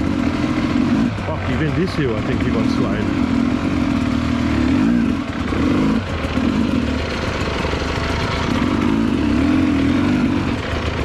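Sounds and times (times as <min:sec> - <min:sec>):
dirt bike engine idling: 0:00.0 - 0:11.0.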